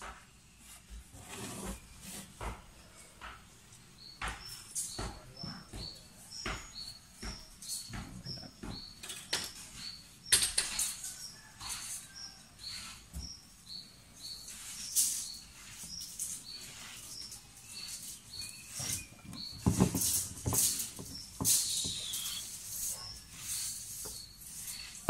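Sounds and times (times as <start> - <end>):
small bird chirping: 3.7 - 25.0
knocks: 4.2 - 9.5.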